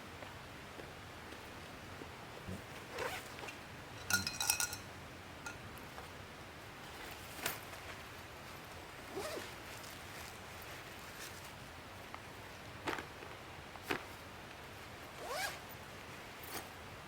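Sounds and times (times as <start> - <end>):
metal items clinking: 4.0 - 4.9.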